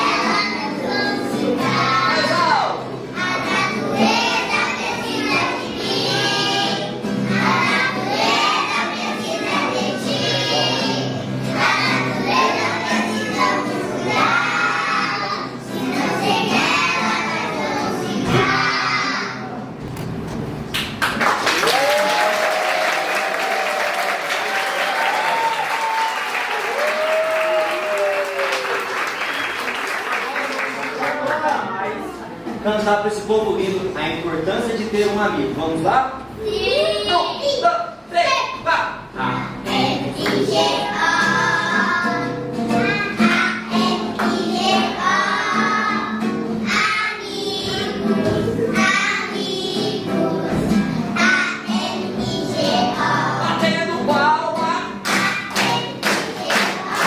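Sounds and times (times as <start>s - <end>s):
children singing: 0.0s - 19.7s, 39.2s - 54.0s, 54.9s - 57.0s
audience clapping: 20.7s - 31.8s, 55.0s - 57.0s
long drawn-out cheers: 21.5s - 29.8s
backing music: 39.2s - 57.0s.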